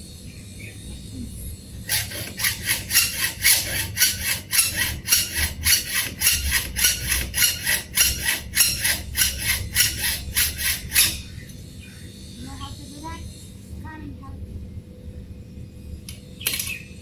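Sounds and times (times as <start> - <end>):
hand saw cutting metal: 1.8 - 11.3.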